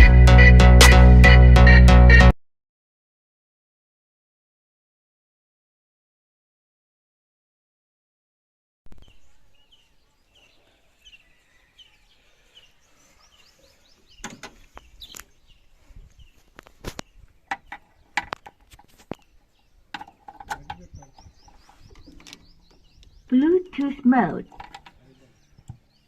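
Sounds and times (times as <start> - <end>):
bird chirping: 8.9 - 26.0
sharp knocks and clicks: 14.2 - 14.6, 16.9 - 19.2, 19.9 - 23.9, 24.5 - 25.0.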